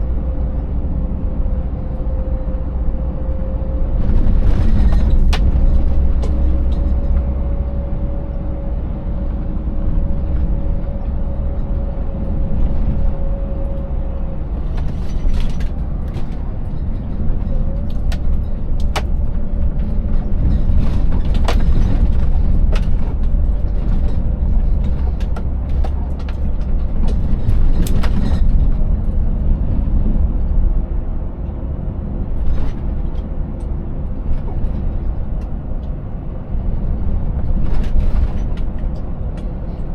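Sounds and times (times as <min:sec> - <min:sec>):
truck engine rumbling: 0:00.0 - 0:39.9
knocks and rattles: 0:14.8 - 0:28.8.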